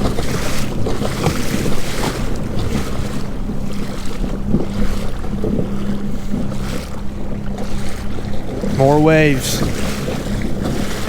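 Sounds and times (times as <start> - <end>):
waves slapping a kayak: 0.0 - 11.0.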